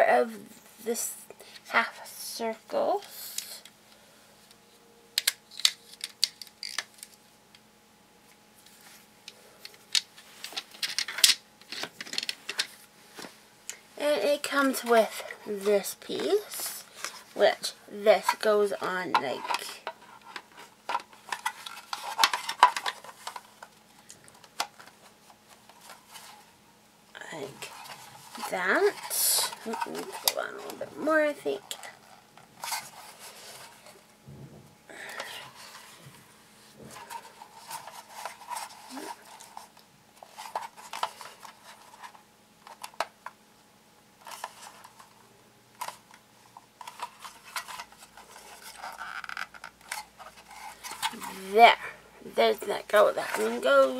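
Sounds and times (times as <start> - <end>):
toy train pieces clicking together: 5.2 - 6.9.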